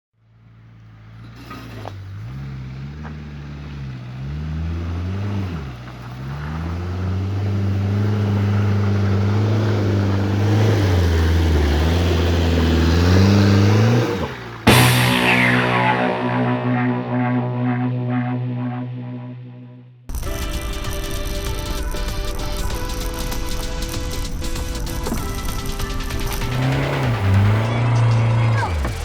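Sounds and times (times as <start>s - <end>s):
diesel engine under load: 0.4s - 14.7s.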